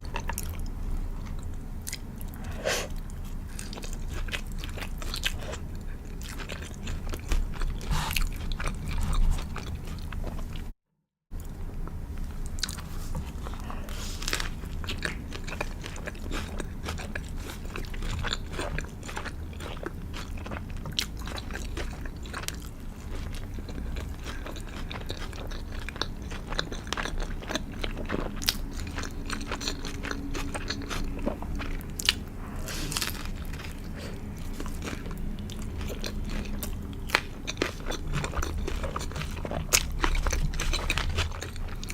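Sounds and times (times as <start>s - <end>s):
wet chewing: 0.0s - 10.7s, 11.4s - 41.9s
crunching crispy coating: 12.2s - 41.9s.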